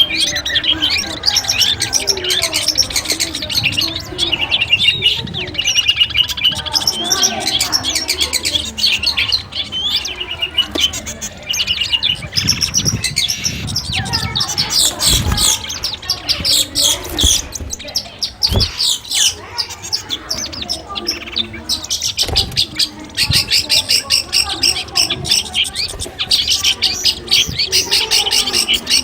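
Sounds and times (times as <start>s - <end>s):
bird chattering trills and chirps: 0.0s - 29.0s
low thuds: 16.4s - 18.8s.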